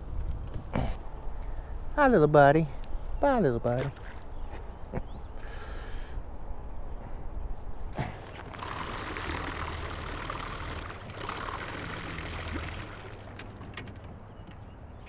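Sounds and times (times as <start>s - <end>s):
boat motor hum: 3.2s - 5.8s, 7.6s - 15.0s
water rushing along hull: 3.7s - 4.5s, 8.0s - 14.0s.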